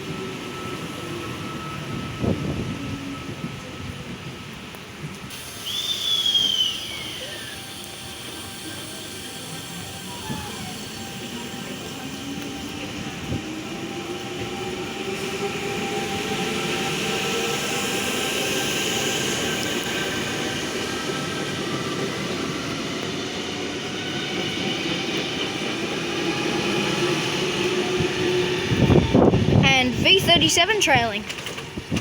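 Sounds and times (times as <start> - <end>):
train wheels rumbling on rails: 0.0 - 32.0
train motor whine: 5.1 - 30.2.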